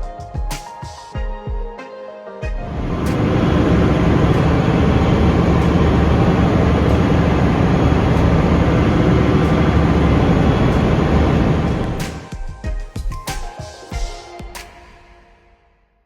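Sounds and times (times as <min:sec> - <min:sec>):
gas engine running: 0:02.6 - 0:12.4.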